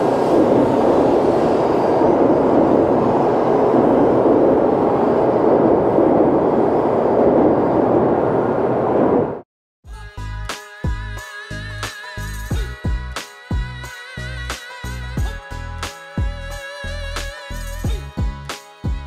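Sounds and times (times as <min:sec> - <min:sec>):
train rushing rumble: 0:00.0 - 0:09.4.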